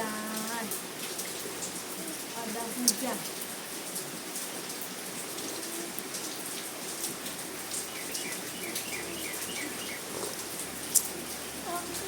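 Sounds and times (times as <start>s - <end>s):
steady rain falling: 0.0s - 12.0s
bird chirping: 7.6s - 11.4s.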